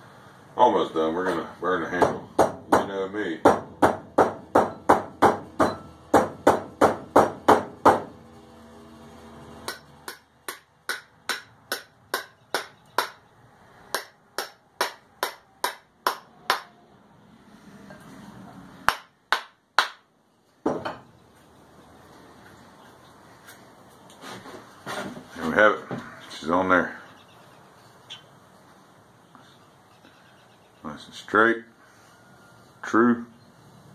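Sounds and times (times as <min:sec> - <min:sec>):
hammer blows with metallic ring: 0:04.6 - 0:06.0.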